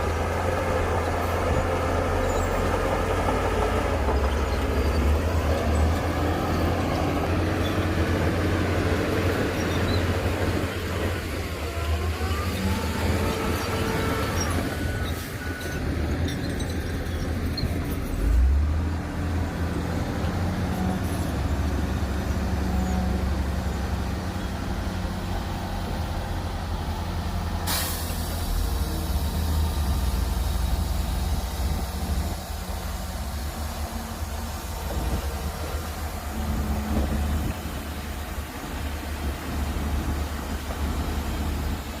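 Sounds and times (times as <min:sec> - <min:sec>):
diesel machinery engine rumble: 0:00.0 - 0:42.0
short hiss: 0:27.7 - 0:28.7.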